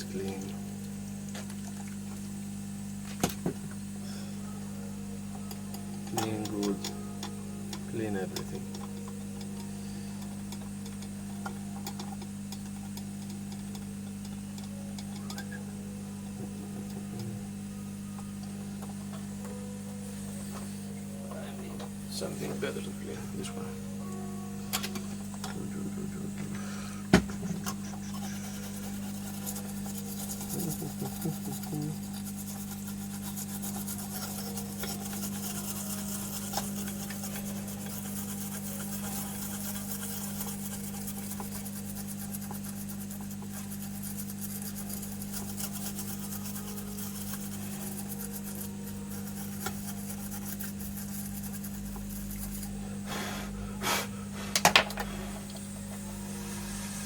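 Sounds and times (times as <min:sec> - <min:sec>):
steady low hum: 0:00.0 - 0:57.0
scrubbing on circuit board: 0:27.6 - 0:52.8.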